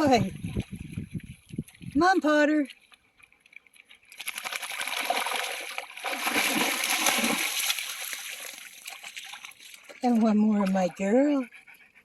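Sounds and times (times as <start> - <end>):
dog splashing through water: 0.0 - 11.4.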